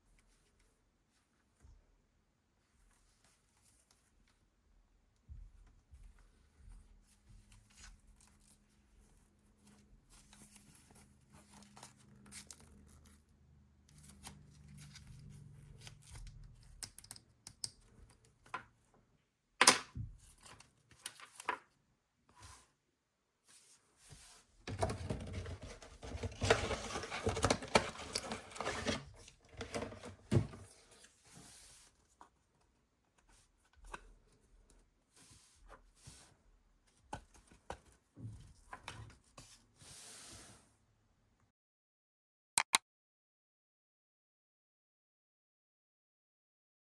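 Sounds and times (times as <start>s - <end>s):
packaging clicks and rustles: 24.7s - 30.7s
packaging tearing and crinkling: 26.1s - 29.2s.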